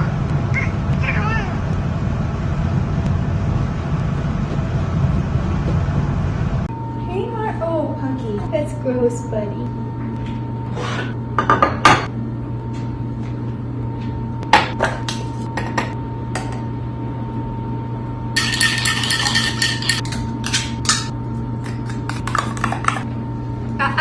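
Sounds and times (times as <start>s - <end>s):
steady low hum: 0.0s - 24.0s
dishes and cutlery clattering: 18.4s - 21.1s.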